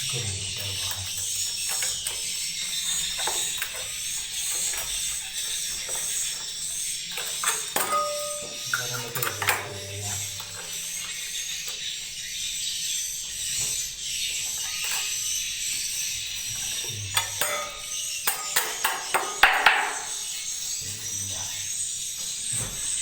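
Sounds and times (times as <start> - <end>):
swiftlets twittering: 0.0 - 21.7
sharp clicks and knocks: 0.5 - 11.8.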